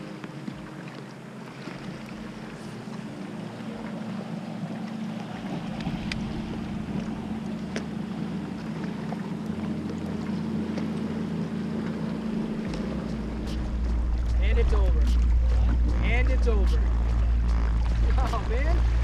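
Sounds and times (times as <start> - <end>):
water lapping on kayak: 0.0 - 19.0
steady low hum: 1.5 - 19.0
wind on microphone: 5.2 - 7.8, 12.2 - 19.0.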